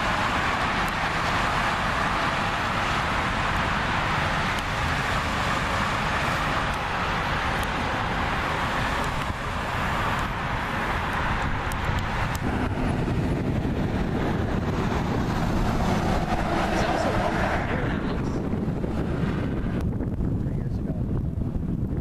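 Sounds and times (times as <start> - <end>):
tyre and road noise in car: 0.0 - 22.0.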